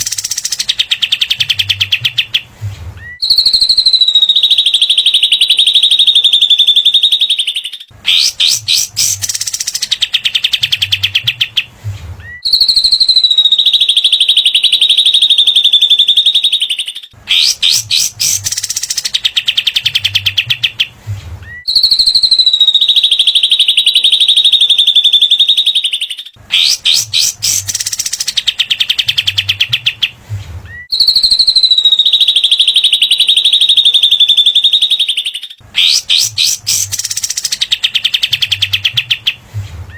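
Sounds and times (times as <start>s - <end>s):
fast rattling bird trill: 0.0s - 2.3s, 7.6s - 10.9s, 17.3s - 19.9s, 26.5s - 29.6s, 35.8s - 39.1s
long high bird whistle: 3.0s - 10.1s, 12.2s - 16.6s, 21.5s - 25.8s, 30.7s - 38.1s.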